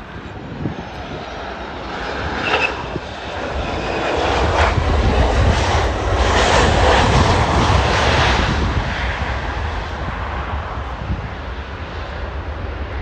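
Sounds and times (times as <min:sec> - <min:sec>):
airliner engines passing: 0:00.0 - 0:13.0.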